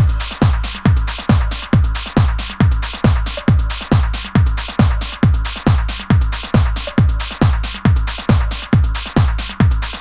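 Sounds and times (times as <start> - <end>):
hi-hats: 0.0 - 10.0
kick drum falling in pitch: 0.0 - 10.0
trance music: 0.0 - 10.0.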